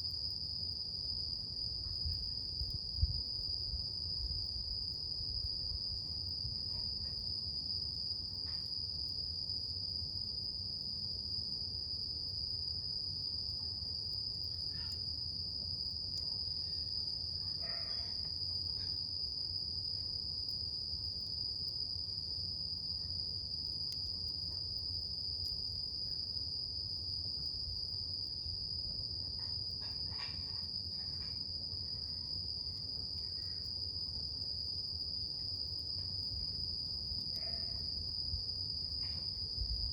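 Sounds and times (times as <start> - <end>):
insects trilling: 11.8 - 26.4, 29.2 - 39.9.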